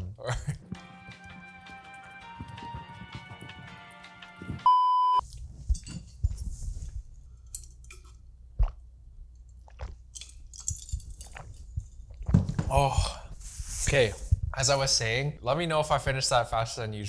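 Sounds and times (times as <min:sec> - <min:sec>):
background music: 0:00.3 - 0:04.7
loud steady beep: 0:04.6 - 0:05.2
person chewing food: 0:05.2 - 0:13.3.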